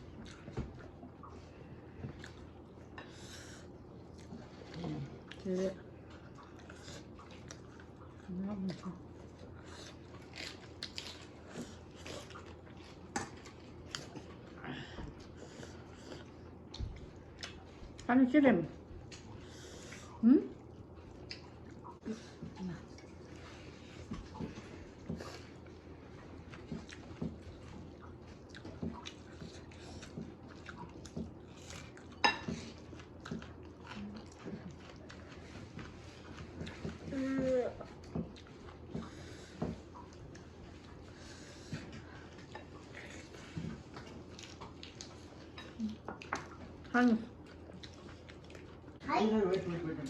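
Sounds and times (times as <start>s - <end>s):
person chewing food: 0.0s - 18.1s, 18.8s - 49.0s
person biting and chewing: 10.0s - 14.2s.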